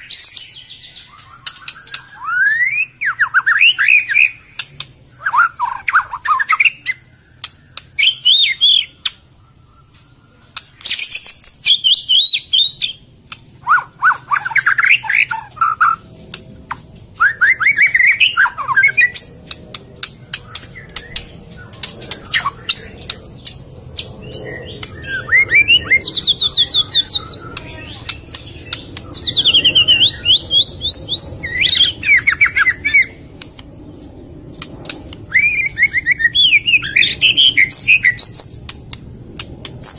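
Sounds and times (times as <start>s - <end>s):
bird singing whistled phrases: 0.0s - 4.6s, 5.2s - 10.2s, 10.8s - 13.0s, 17.2s - 19.3s, 24.3s - 33.2s, 35.3s - 38.6s
bird clicking notes: 19.1s - 25.0s.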